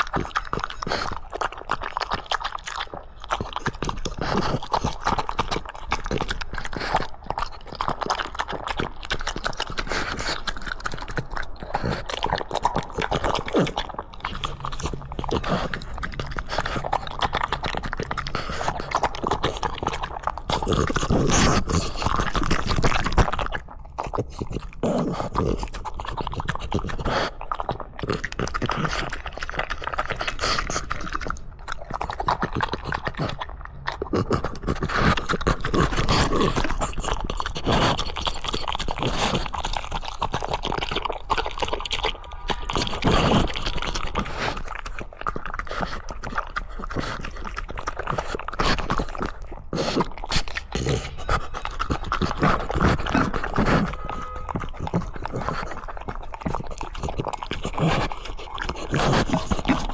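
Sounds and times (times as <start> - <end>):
dog chewing and crunching food: 0.0 - 59.9
dog grunting: 47.8 - 59.9.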